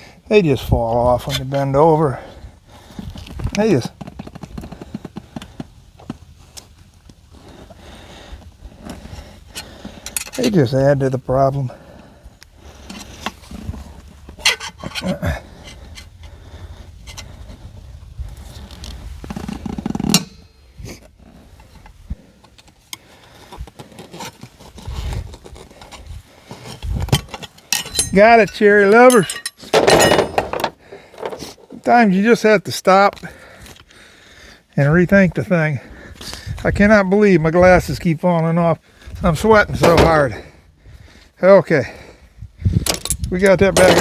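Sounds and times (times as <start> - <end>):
metal clinks and scrapes: 9.5 - 10.7, 14.3 - 16.1, 23.9 - 31.6.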